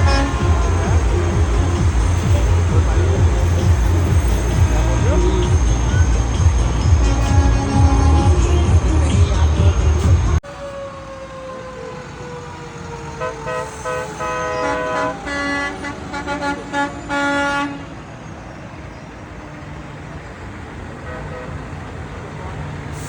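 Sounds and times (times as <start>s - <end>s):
truck horns blasting: 0.0s - 10.3s, 13.2s - 18.0s, 21.0s - 21.9s
low rumble of vehicles: 0.0s - 23.0s.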